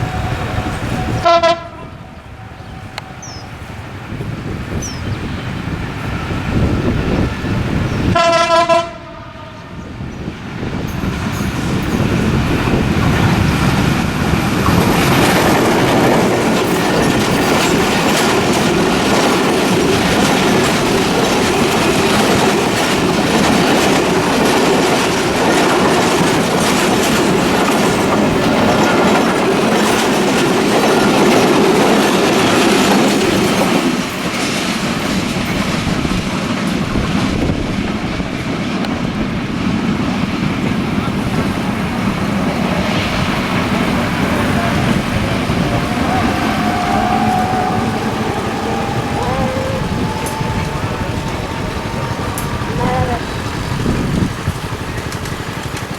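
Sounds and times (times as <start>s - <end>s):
train horn blast: 0.0s - 3.7s, 8.1s - 9.8s, 44.6s - 54.2s
train wheels clattering on rails: 10.0s - 55.9s.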